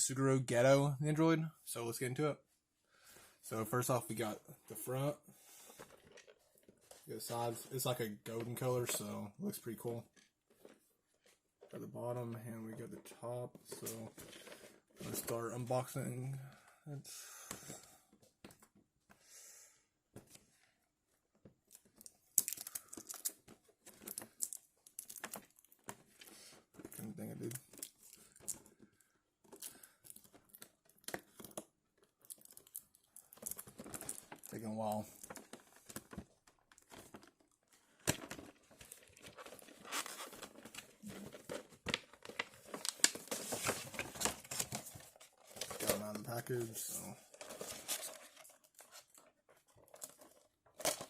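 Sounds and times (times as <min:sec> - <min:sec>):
packaging crinkling and rustling: 0:21.6 - 0:51.0.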